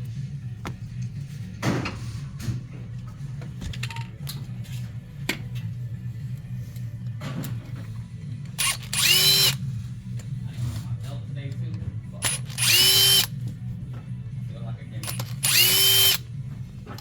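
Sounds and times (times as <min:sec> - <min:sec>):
power drill whining: 0:08.6 - 0:09.6, 0:12.2 - 0:13.3, 0:15.0 - 0:16.2
tools clicking and knocking: 0:15.0 - 0:16.2.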